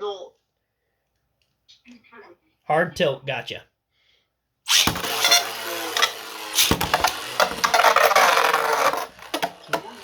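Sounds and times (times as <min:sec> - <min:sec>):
spinning tops scraping and rattling: 0:04.7 - 0:10.0
tops knocking against walls: 0:06.0 - 0:10.0.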